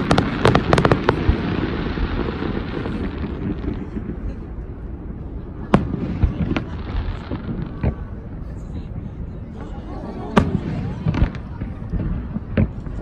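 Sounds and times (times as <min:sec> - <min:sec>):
sharp firework bangs: 0:00.0 - 0:04.2
fireworks booms rumbling: 0:00.0 - 0:13.0.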